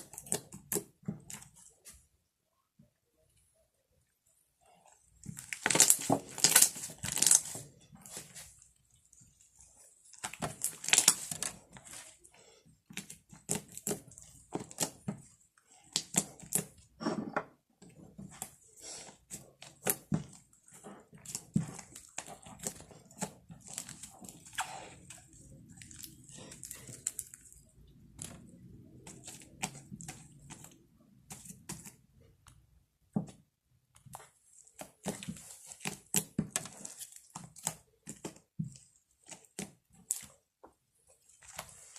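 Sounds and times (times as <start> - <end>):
slime squishing and popping: 5.2 - 8.4, 10.0 - 12.1, 12.9 - 16.8.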